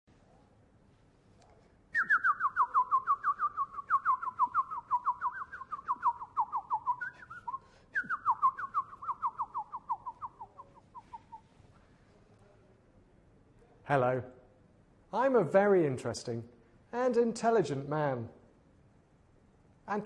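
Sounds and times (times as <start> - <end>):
bird whistling downward notes: 2.0 - 11.5.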